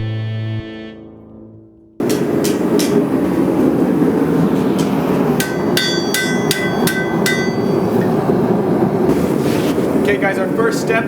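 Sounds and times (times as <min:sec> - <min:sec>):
metal-on-metal strikes: 0:02.0 - 0:03.0, 0:04.8 - 0:08.0
forge roaring: 0:02.0 - 0:11.0.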